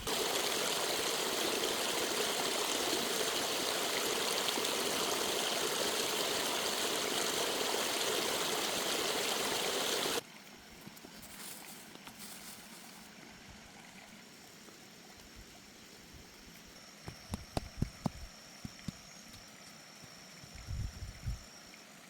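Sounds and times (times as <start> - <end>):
rushing water: 0.0 - 10.2.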